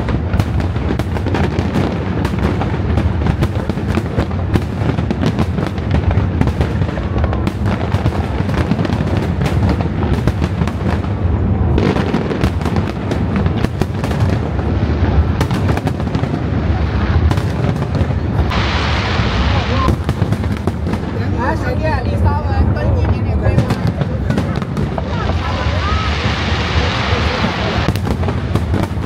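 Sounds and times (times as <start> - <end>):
fireworks bangs and crackles: 0.0 - 29.0
low rumble: 12.5 - 29.0.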